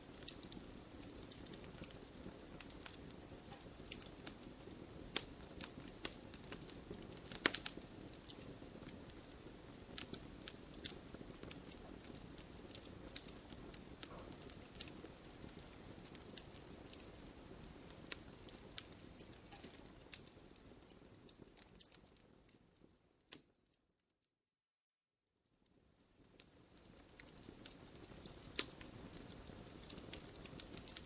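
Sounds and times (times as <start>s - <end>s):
hiss of flames: 0.0s - 21.8s, 26.2s - 31.0s
wood fire crackling: 0.0s - 23.6s, 25.6s - 31.0s.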